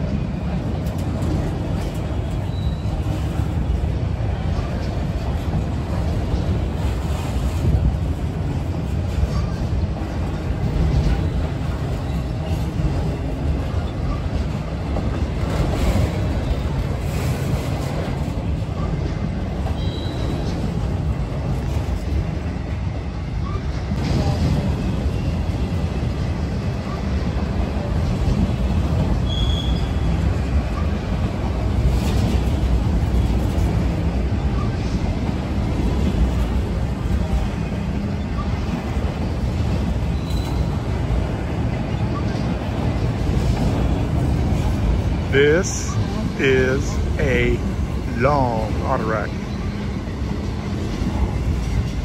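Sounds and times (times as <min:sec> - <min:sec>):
train wheels rumbling on rail: 0:00.0 - 0:52.0
train wheel squeals: 0:01.2 - 0:03.7, 0:09.2 - 0:14.5, 0:15.5 - 0:20.9, 0:23.4 - 0:26.0, 0:28.9 - 0:33.8, 0:34.4 - 0:35.1, 0:37.2 - 0:44.7.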